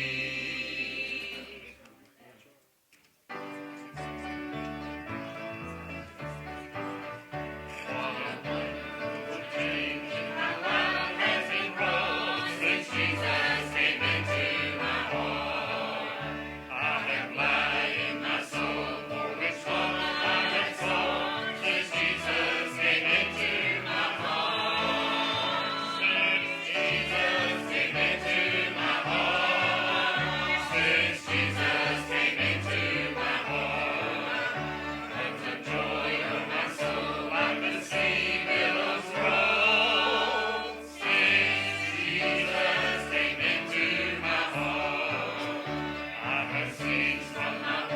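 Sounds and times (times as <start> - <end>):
choir singing a gospel hymn: 0.0 - 1.8, 7.6 - 47.9
instrumental accompaniment: 3.3 - 47.9.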